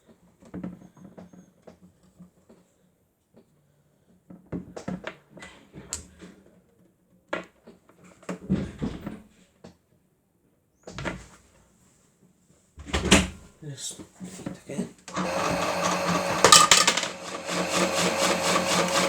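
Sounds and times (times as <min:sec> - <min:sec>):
small motor hum: 0:15.1 - 0:19.0
batteries rattling in toy drum: 0:15.2 - 0:19.0.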